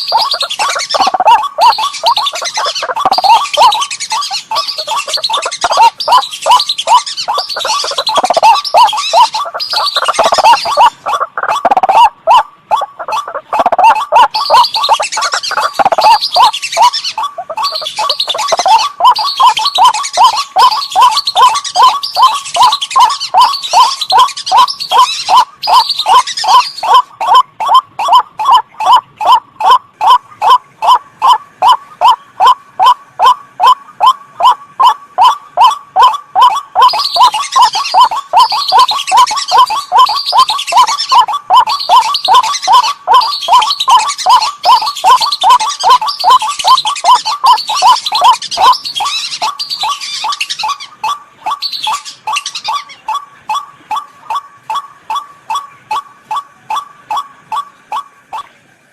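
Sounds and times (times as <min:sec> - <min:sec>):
high chattering duck whistles: 0:00.0 - 0:58.5
monotonous waterhen call: 0:00.0 - 0:58.7.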